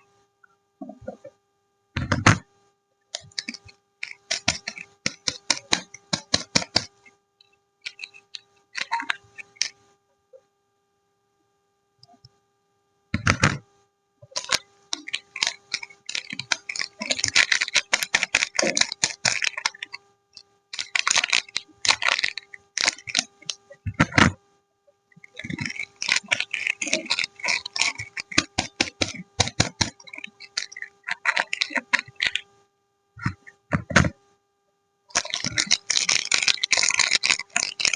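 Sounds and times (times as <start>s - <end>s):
packaging crinkling and rustling: 14.3s - 19.9s, 20.8s - 24.2s, 25.3s - 32.4s, 35.1s - 37.9s.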